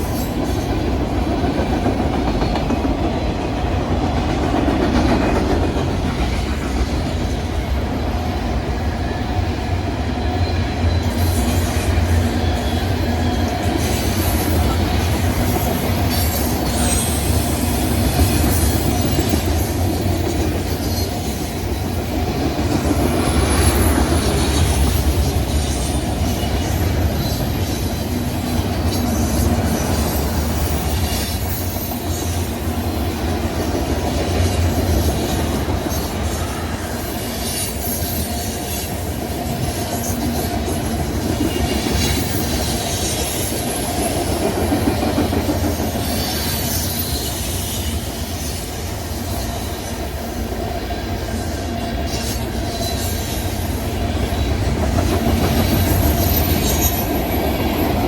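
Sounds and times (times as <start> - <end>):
freight train rumbling past: 0.0 - 58.0
high wheel squeal: 10.2 - 22.0, 34.4 - 40.8, 45.5 - 50.0, 51.4 - 54.7, 55.4 - 58.0.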